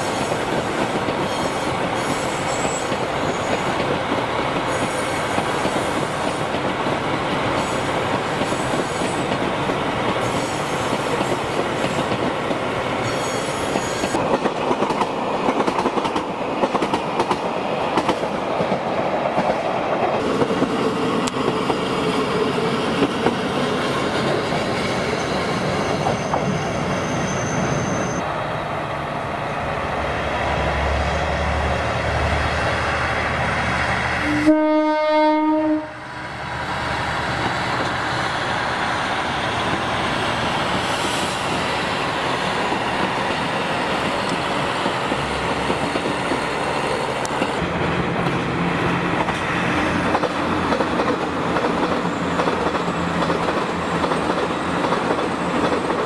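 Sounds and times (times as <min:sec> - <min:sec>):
diesel railcars rumbling past: 0:00.0 - 0:56.0
electric train rolling past: 0:00.0 - 0:56.0
train horn blast: 0:34.2 - 0:36.1.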